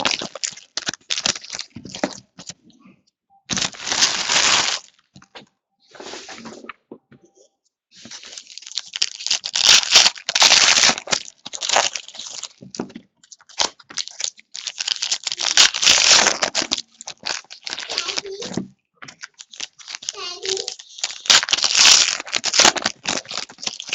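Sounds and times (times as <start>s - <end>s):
card packaging tearing and crinkling: 0.0s - 2.6s, 3.5s - 5.0s, 8.0s - 12.7s, 13.3s - 23.9s.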